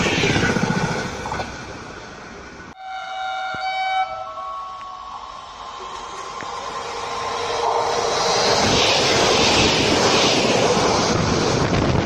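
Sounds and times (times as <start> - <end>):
train rushing rumble: 0.0 - 2.8, 4.7 - 12.0
train horn: 2.8 - 5.1.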